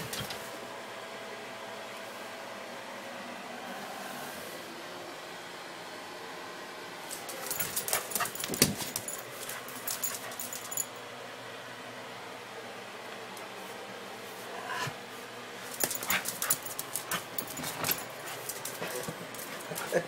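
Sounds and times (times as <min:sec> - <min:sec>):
dog making clicking rattling sounds: 0:07.1 - 0:10.9, 0:15.7 - 0:20.0.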